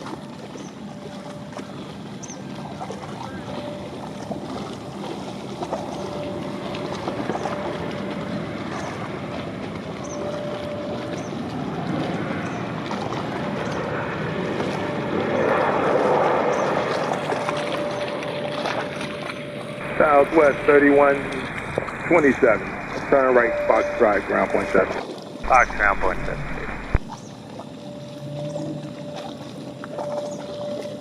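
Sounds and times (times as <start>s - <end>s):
jet airliner landing: 2.9s - 27.2s.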